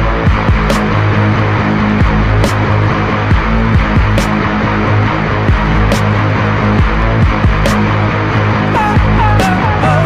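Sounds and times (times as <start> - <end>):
dense music with heavy bass: 0.0 - 10.0.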